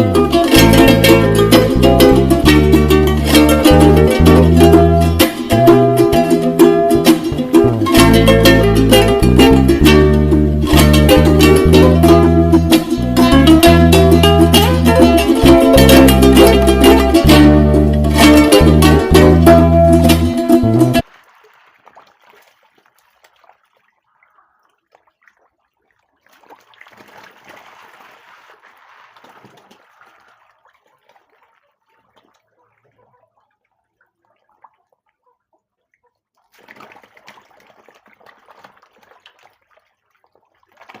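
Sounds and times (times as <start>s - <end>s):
plucked-string background music: 0.0s - 21.0s
pond water splashing and trickling: 0.0s - 41.0s.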